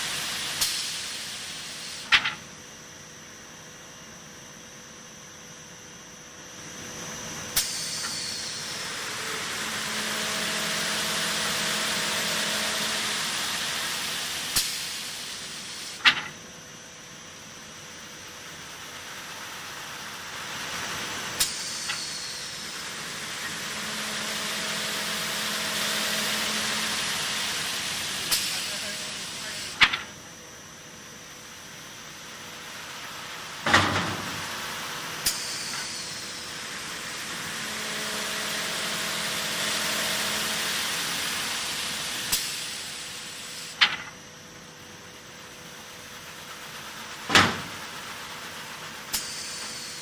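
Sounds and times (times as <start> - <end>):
sanding machine humming: 8.7 - 14.5, 22.5 - 29.6.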